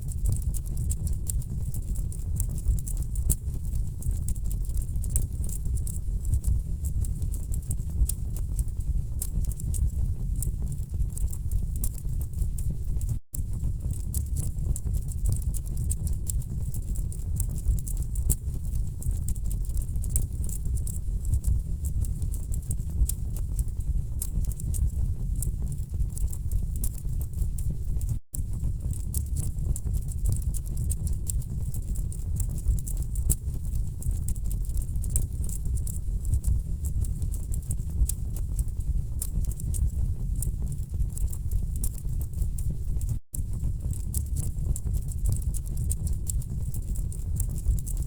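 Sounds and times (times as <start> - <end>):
low rumble of flames: 0.1 - 48.0.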